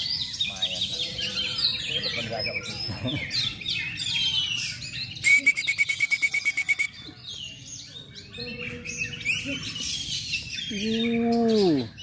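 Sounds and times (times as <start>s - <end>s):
songbird whistling: 4.0s - 7.2s.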